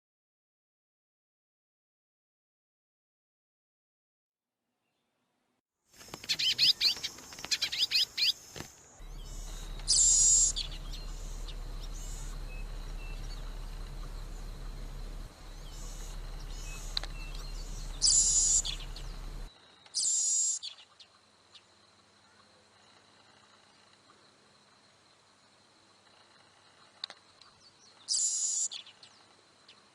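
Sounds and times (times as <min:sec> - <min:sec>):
birds chirping: 0:06.0 - 0:20.1
steady low hum: 0:09.0 - 0:19.5
high-pitched bird calls: 0:09.0 - 0:20.8.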